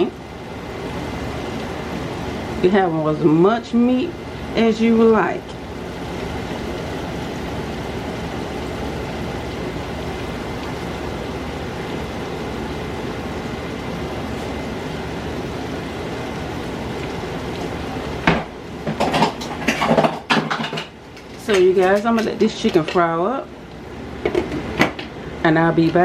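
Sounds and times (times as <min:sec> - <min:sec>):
chicken deep-frying in oil: 0:00.0 - 0:26.0
pans or utensils knocking: 0:18.3 - 0:20.9.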